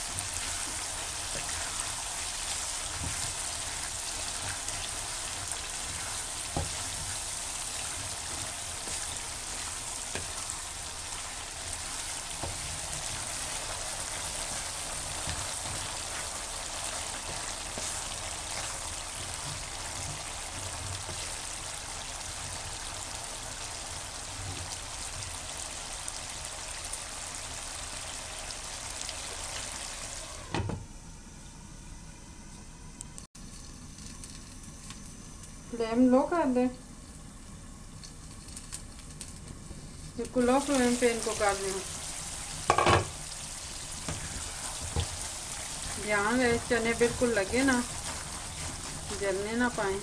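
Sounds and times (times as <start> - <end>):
chickpeas sizzling in oil: 0.0 - 30.5, 37.0 - 50.0
glass lid knocking on pan: 42.7 - 43.1.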